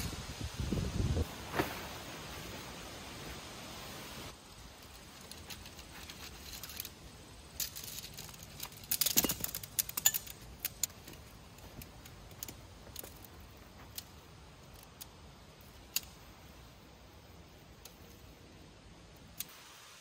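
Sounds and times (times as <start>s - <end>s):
tent poles clinking and clicking: 4.6s - 16.8s, 17.6s - 18.6s.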